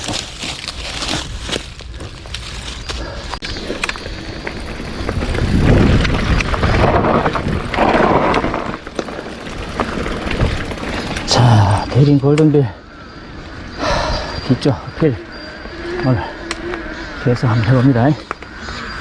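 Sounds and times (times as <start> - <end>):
bike tyres and drivetrain: 0.0 - 19.0
wind on microphone: 4.8 - 8.8.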